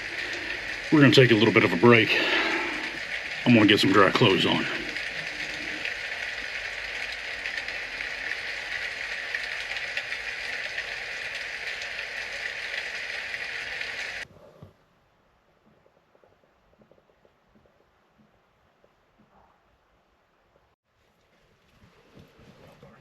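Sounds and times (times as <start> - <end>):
heavy rain on camper roof: 0.0 - 14.3.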